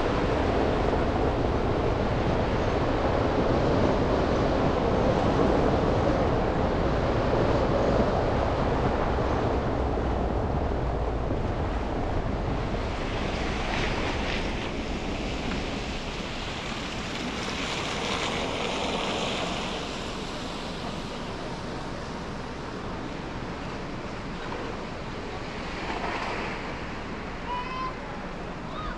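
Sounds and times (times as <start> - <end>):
tyre hiss on snowy road: 16.5 - 21.0.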